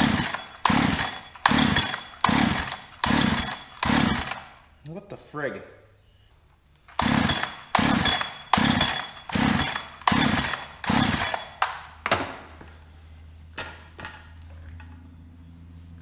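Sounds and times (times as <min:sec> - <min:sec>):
chainsaw starter cord pulls: 0:00.0 - 0:04.6, 0:06.9 - 0:11.8.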